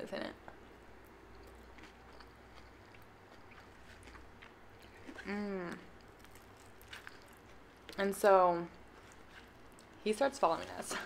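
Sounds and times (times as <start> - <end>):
soft chewing with wet mouth clicks: 1.0 - 5.3, 6.0 - 8.0.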